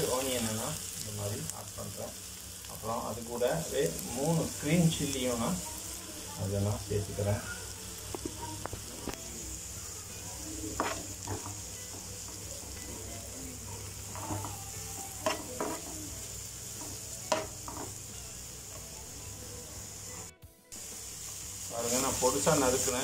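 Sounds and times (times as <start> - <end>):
onions sizzling in oil: 0.0 - 23.0
scrapes against the pan: 10.6 - 11.6, 15.2 - 16.1.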